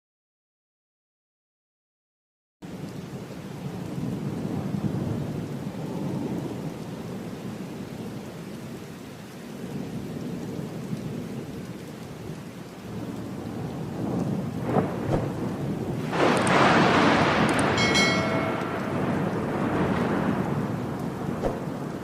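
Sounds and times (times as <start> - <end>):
heavy rain: 2.6 - 22.0
rolling thunder: 12.9 - 22.0.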